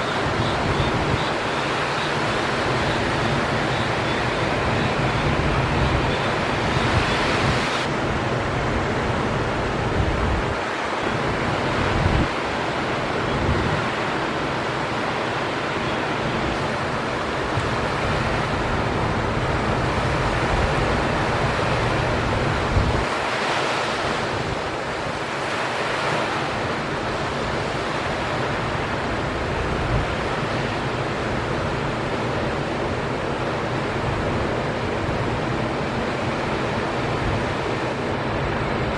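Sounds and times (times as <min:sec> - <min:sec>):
wind buffeting microphone: 0:00.0 - 0:15.3, 0:16.3 - 0:25.4
waves breaking: 0:00.0 - 0:38.9.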